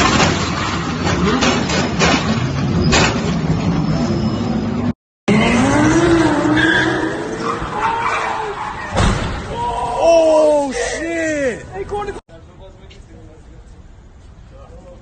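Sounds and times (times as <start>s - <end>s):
car engines running hard: 0.0s - 8.8s
wind and road noise: 0.0s - 15.0s
engine revving: 4.8s - 7.8s.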